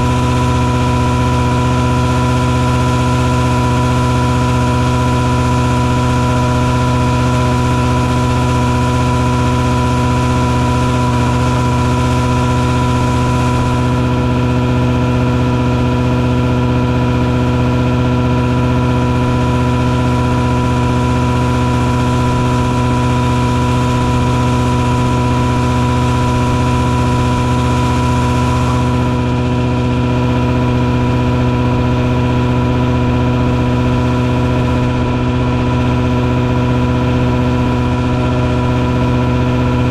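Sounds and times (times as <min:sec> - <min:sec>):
fogging truck engine drone: 0:00.0 - 0:39.9
high whine of fogger: 0:00.0 - 0:39.9.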